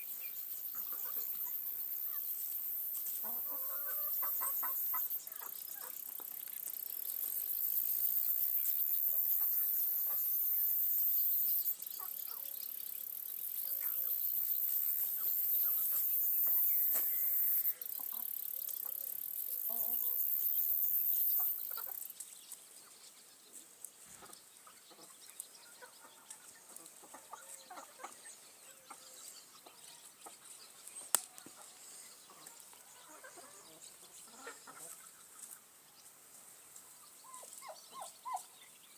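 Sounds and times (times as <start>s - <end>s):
steady high-pitched hiss: 0.0s - 24.7s
chickens clucking: 0.6s - 2.3s, 3.0s - 7.4s, 8.4s - 11.1s, 11.9s - 20.4s, 21.3s - 22.1s, 24.1s - 35.7s.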